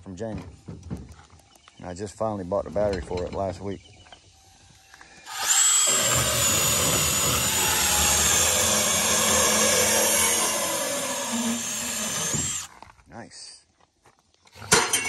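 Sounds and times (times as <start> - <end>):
cutting tool whining through pipe: 5.2 - 12.7.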